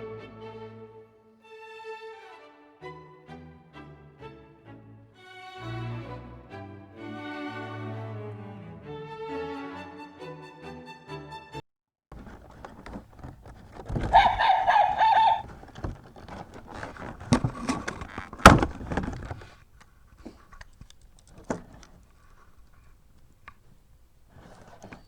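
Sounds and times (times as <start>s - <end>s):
electronic bark from toy speaker: 14.0s - 15.5s.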